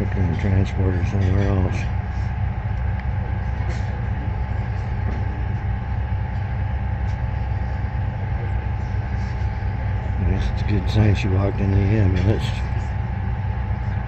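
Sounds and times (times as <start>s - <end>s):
faint steady whine: 0.0s - 14.0s
idling train hum: 0.0s - 14.0s.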